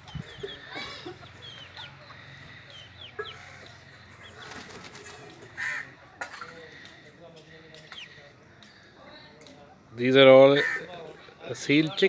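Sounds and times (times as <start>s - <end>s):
chicks peeping: 0.0s - 4.8s
chickens clucking: 0.0s - 8.8s.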